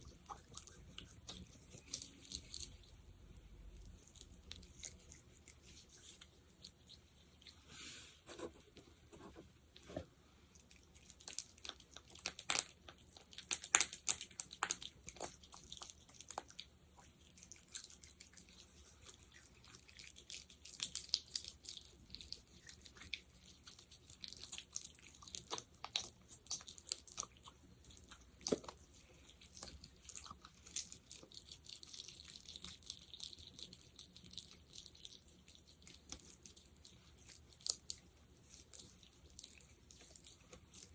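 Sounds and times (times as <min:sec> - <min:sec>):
sticky gel squelching: 0:10.6 - 0:40.9.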